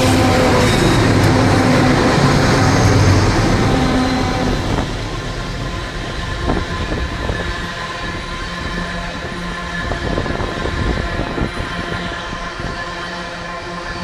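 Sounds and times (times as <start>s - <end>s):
wagon wheels rumbling on rails: 0.0s - 9.6s.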